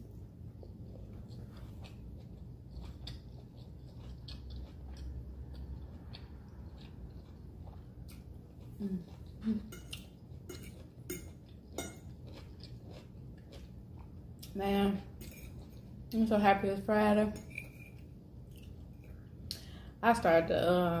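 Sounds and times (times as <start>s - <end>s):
utensil clinking on dish: 9.7s - 12.1s, 15.2s - 15.7s.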